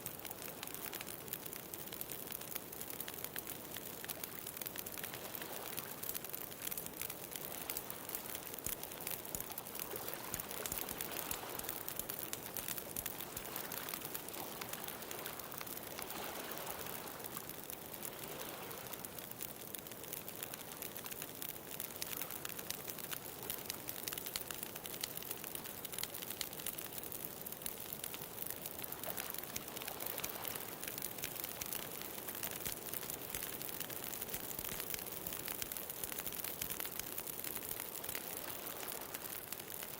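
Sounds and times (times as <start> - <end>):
bonfire crackling and popping: 0.0 - 39.9.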